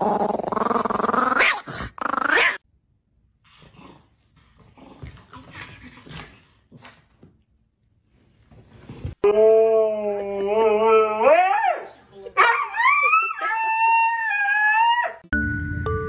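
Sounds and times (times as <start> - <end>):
small dog growling and snarling: 0.0 - 2.6.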